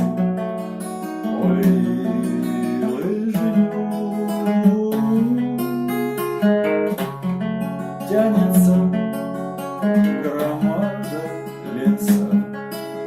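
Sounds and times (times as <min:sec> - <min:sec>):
acoustic guitar strumming: 0:00.0 - 0:13.0
person singing: 0:01.0 - 0:06.4, 0:07.9 - 0:09.2, 0:09.8 - 0:13.0.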